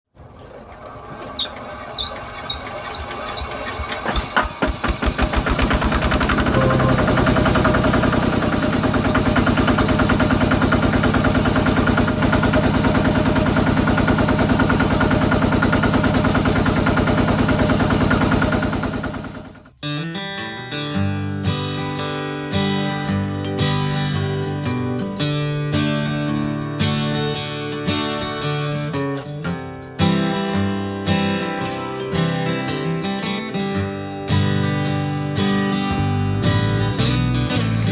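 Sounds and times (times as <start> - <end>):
small tractor engine starting: 0.2 - 19.7.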